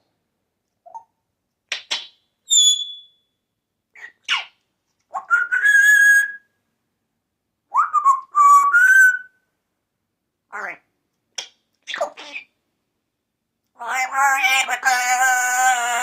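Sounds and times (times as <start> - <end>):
parrot whistling: 2.5 - 3.2, 5.2 - 6.4.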